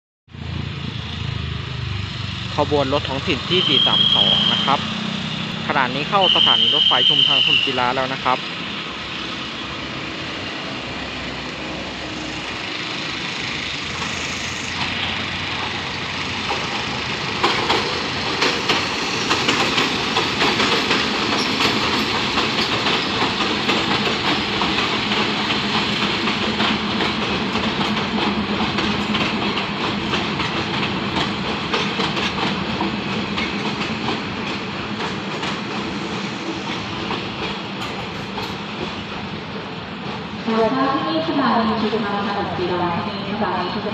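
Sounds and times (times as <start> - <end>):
train wheels clicking over rail joints: 11.2 - 40.4.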